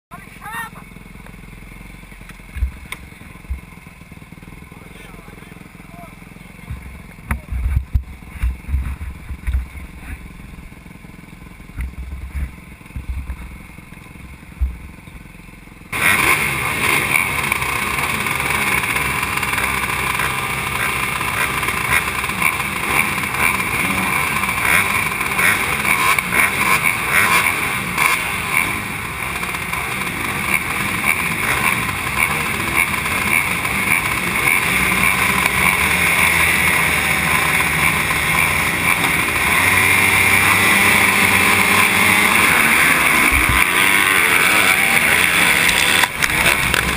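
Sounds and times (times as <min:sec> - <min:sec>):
motocross bike engine revving: 0:00.1 - 0:46.9.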